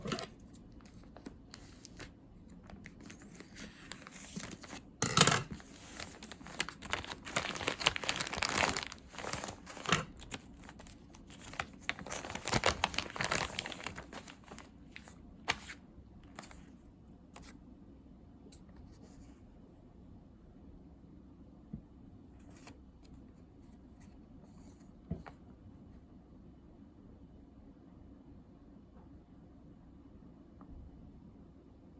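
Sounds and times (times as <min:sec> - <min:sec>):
bag crinkling and rustling: 0:00.0 - 0:16.6.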